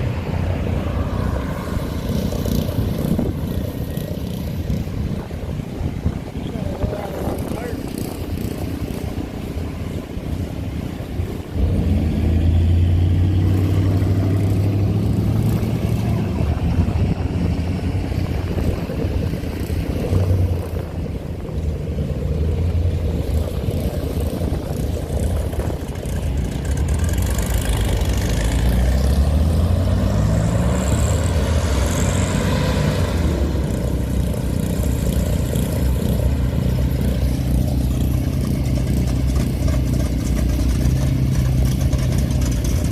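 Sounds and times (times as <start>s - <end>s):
engine revving: 11.5s - 42.9s.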